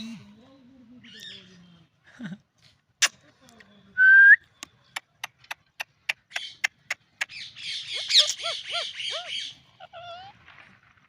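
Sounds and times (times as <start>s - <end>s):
parakeet squawking: 6.3s - 10.3s.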